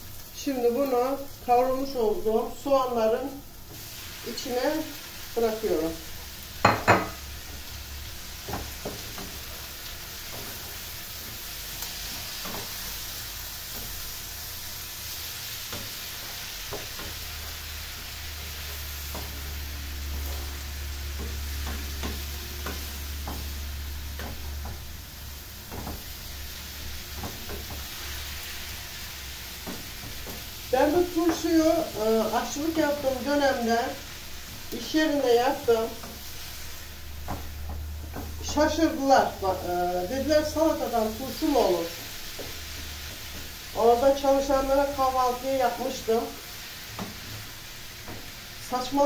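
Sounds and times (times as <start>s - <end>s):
greens sizzling in oil: 0.0s - 49.0s
wooden spoon knocking on pan: 6.6s - 7.6s, 8.4s - 9.4s, 21.1s - 24.9s, 25.7s - 26.1s, 27.1s - 27.9s, 29.6s - 30.4s, 31.2s - 31.7s, 37.2s - 38.6s.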